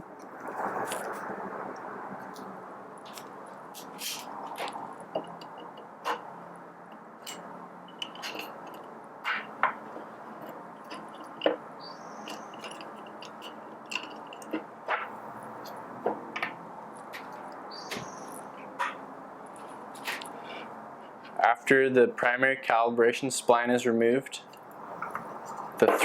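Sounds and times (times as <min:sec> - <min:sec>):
metal scraping: 0:03.1 - 0:06.5, 0:07.2 - 0:21.4
small metal parts clicking: 0:06.9 - 0:11.6, 0:12.2 - 0:14.7.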